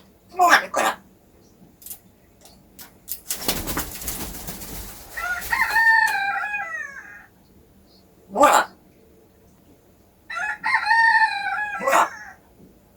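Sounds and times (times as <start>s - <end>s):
rustling flapping noise: 3.1s - 6.2s
parrot crowing: 5.1s - 7.3s, 10.3s - 12.4s.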